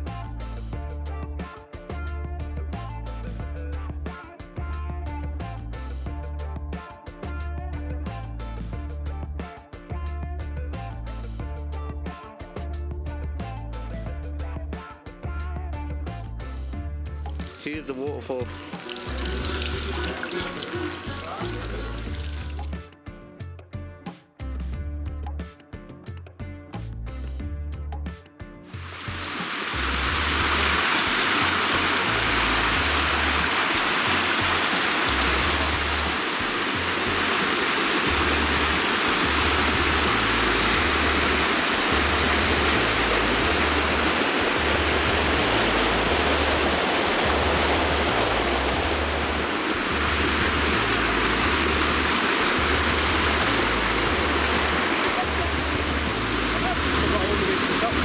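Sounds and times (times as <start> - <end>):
low regular bass beat: 0.0 - 22.8, 28.8 - 58.0
waterfall rushing: 17.4 - 22.7, 28.8 - 58.0.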